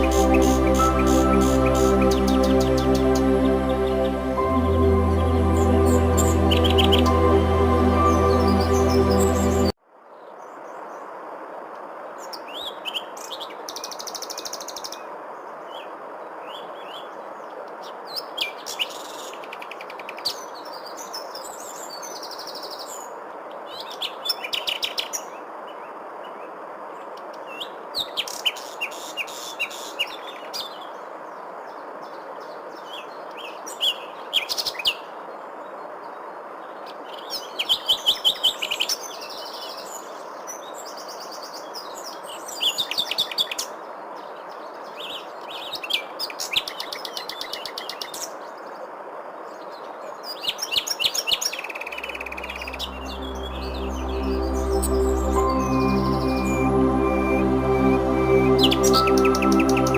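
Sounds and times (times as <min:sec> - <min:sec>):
songbirds chirping and trilling: 0:00.0 - 0:09.7, 0:49.6 - 0:59.9.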